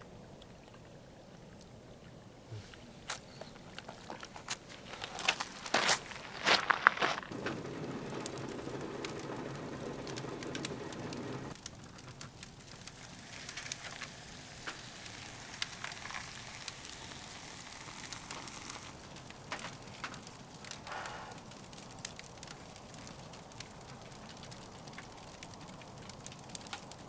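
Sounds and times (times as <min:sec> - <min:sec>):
firewood crackling in a stove: 0:00.2 - 0:27.0
low rushing noise: 0:07.3 - 0:11.6.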